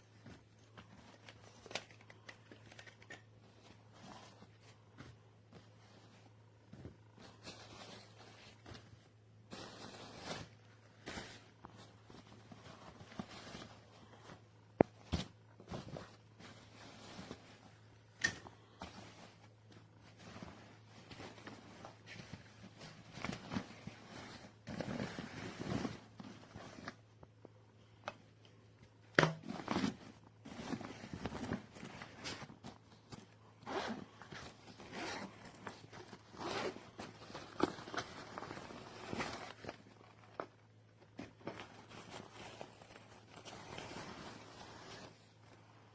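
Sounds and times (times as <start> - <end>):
faint steady hum: 0.0 - 45.9
nylon rustling: 3.4 - 18.0, 18.6 - 27.0, 29.2 - 40.4, 41.1 - 45.5.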